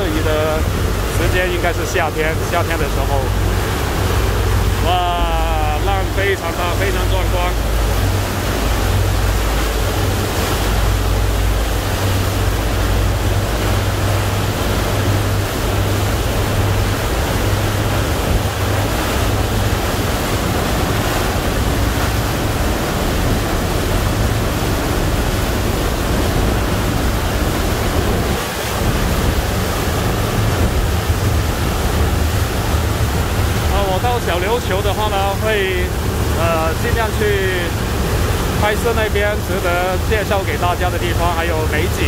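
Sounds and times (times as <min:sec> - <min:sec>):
heavy low rumble: 0:00.0 - 0:42.0
sea waves rushing: 0:00.0 - 0:42.0
wind buffeting microphone: 0:07.1 - 0:34.6.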